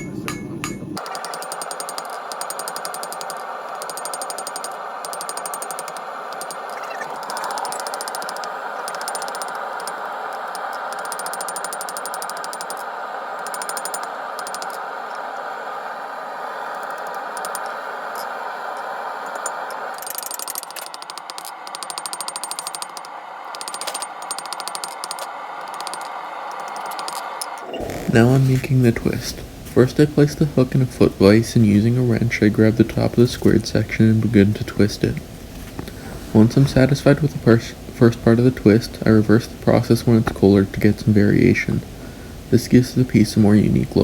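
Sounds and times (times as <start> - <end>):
hammer striking steel on anvil: 0.0 - 6.7.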